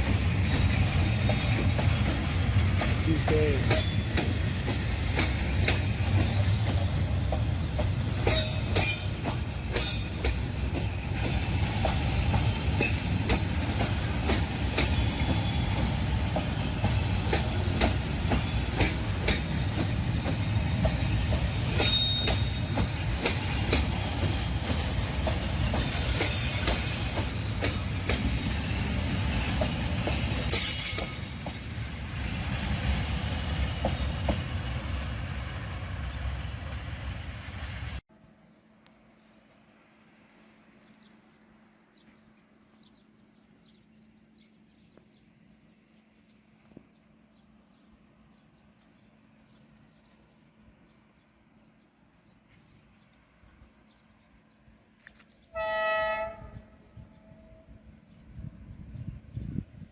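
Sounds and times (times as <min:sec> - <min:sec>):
train cars rumbling past: 0:00.0 - 0:38.6
wheel squeals: 0:13.8 - 0:16.3, 0:17.6 - 0:19.2, 0:21.7 - 0:22.7, 0:25.8 - 0:27.5.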